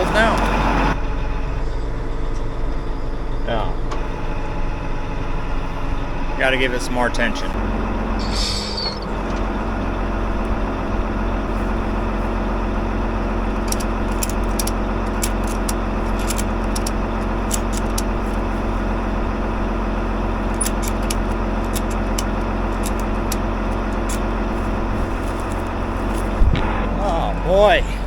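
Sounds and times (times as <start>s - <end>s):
tractor engine running: 0.0s - 28.0s
ratchet strap clicks: 13.6s - 18.1s, 20.5s - 24.2s.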